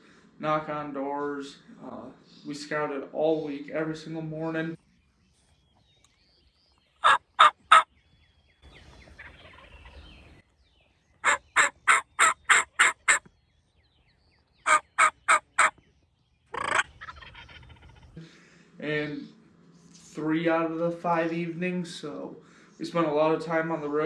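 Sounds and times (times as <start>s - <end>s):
turkey yelping: 7.0s - 7.9s, 9.2s - 10.1s, 11.2s - 13.3s, 14.6s - 15.8s, 16.5s - 18.2s.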